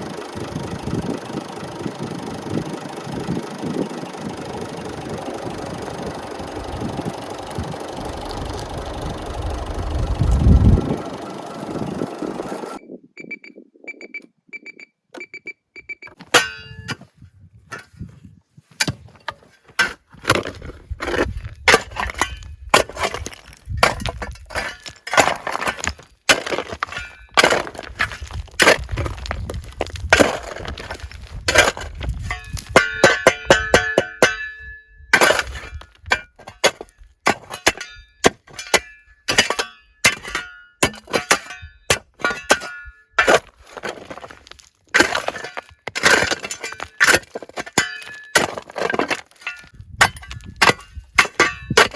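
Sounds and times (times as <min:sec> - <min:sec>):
short high beeps: 0:12.8 - 0:16.2
sharp knocks clinks and cracks: 0:21.7 - 0:51.9.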